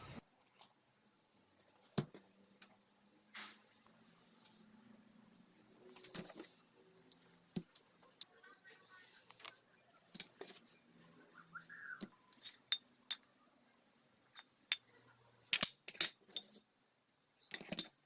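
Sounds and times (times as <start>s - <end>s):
metal parts and tools clinking: 12.0s - 13.4s, 14.2s - 16.7s, 17.4s - 18.0s.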